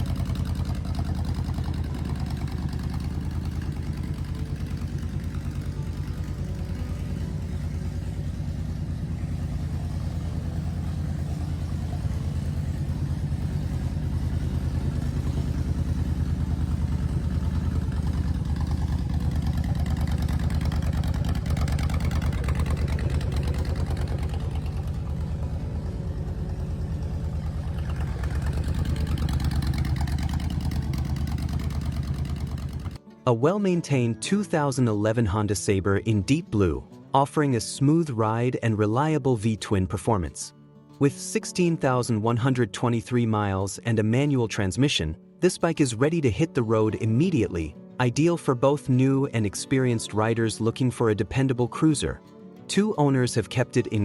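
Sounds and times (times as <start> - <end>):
motorcycle engine idling: 0.0 - 33.0.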